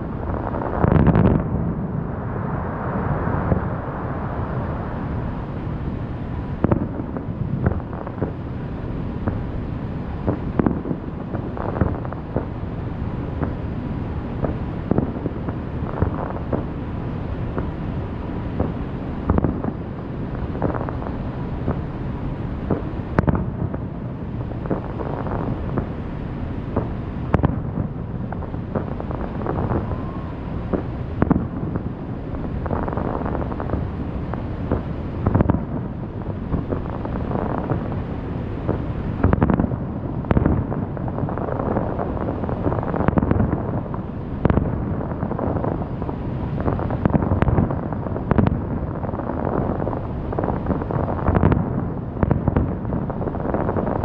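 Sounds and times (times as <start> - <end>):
fireworks bursts and booms: 0.0 - 54.0
wind buffeting microphone: 0.0 - 54.0
sharp firework cracks: 0.2 - 4.8, 6.5 - 13.7, 18.5 - 54.0.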